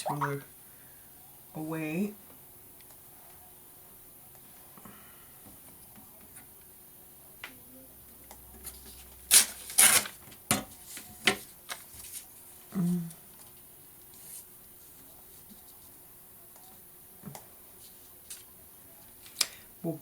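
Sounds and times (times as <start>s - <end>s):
paper rustling and snapping: 9.3s - 12.2s.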